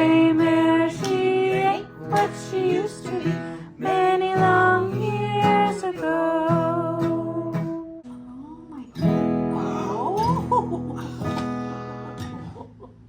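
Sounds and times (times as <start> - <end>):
person singing long notes: 0.0 - 8.8
guitar: 0.0 - 13.0.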